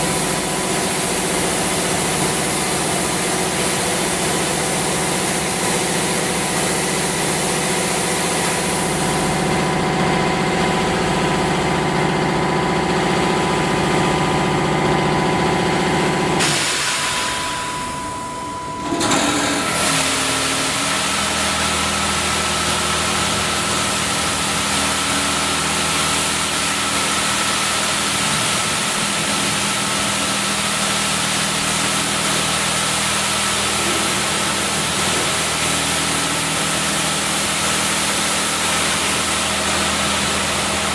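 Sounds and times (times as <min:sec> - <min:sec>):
car wash motors and pumps humming: 0:00.0 - 0:40.9.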